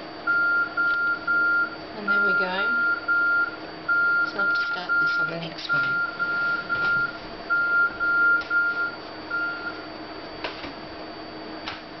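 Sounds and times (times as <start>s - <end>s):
faint steady hum: 0.0s - 12.0s
short electronic beeps: 0.3s - 9.8s.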